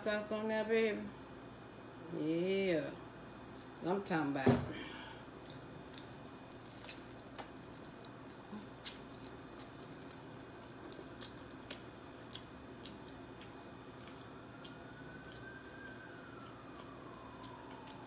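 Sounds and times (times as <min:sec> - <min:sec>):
chewing and tearing: 0:05.4 - 0:18.0
crispy crust crackles: 0:05.4 - 0:18.0.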